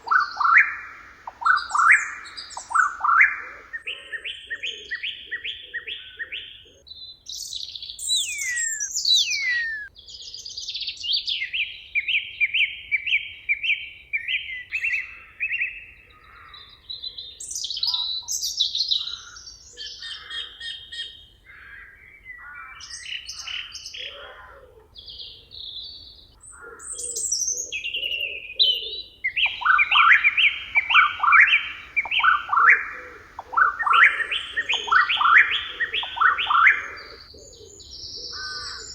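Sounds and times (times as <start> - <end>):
birds singing: 0.0 - 9.9, 25.0 - 38.9
falling whistles: 8.0 - 9.9, 29.5 - 37.2.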